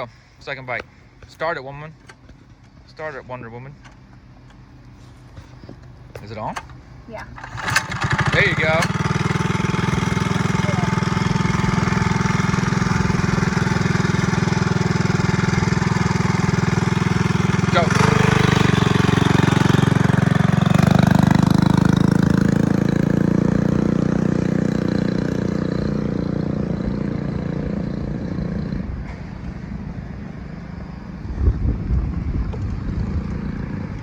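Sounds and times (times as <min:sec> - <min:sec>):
mini bike engine revving: 0:07.1 - 0:29.1, 0:31.9 - 0:34.0
wind gusts on microphone: 0:28.6 - 0:34.0.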